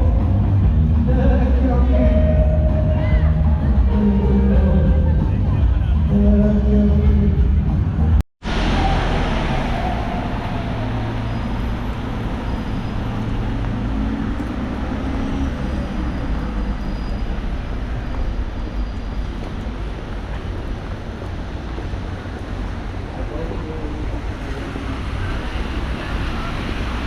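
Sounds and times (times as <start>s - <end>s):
outdoor rumble and hiss: 16.7s - 27.0s.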